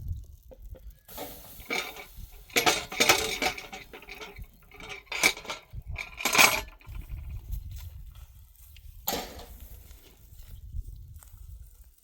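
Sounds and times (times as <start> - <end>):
metal pots and dishes clattering: 1.1 - 7.1.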